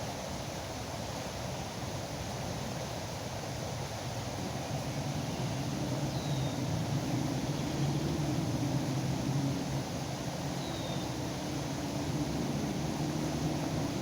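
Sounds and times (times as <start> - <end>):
background hiss: 0.0 - 14.0
low engine drone: 4.4 - 14.0.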